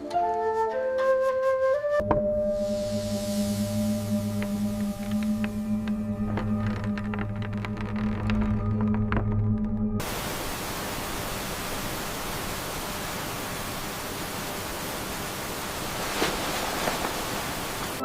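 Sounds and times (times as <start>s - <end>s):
music: 0.0s - 10.0s
steady static hiss: 2.4s - 8.4s, 10.0s - 18.0s.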